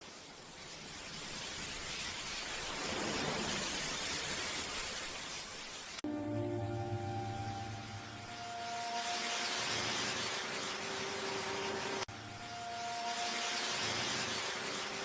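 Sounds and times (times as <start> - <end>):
rain hiss: 0.0 - 15.0.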